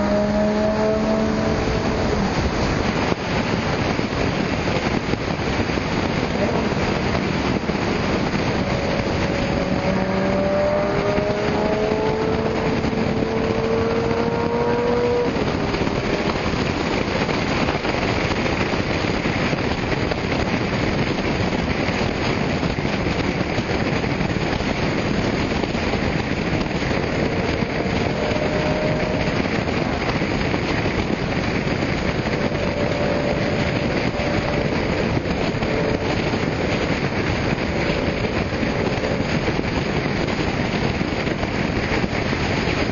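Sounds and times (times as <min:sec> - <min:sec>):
car engine accelerating: 0:00.0 - 0:18.4, 0:24.5 - 0:42.9
constant rushing noise: 0:00.0 - 0:42.9
faint engine tones: 0:25.5 - 0:40.4.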